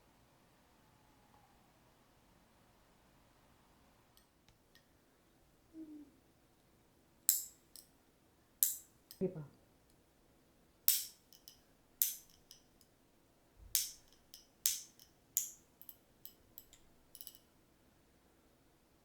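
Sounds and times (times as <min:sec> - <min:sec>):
sharp bright kitchen clicks: 0:13.7 - 0:17.4.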